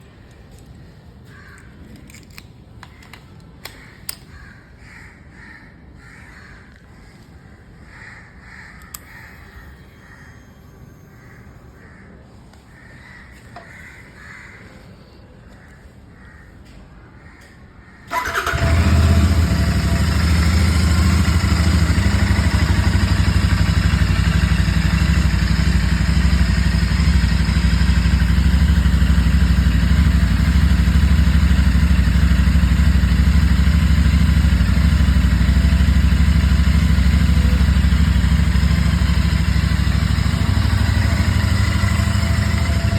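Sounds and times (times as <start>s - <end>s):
crows cawing: 1.2s - 1.8s, 3.7s - 10.4s, 11.2s - 18.6s
motorcycle engine starting and idling: 18.1s - 42.9s.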